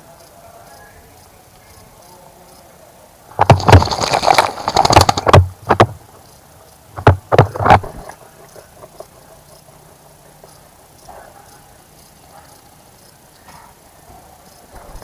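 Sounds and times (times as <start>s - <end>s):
bird splashing in water: 3.3s - 6.2s.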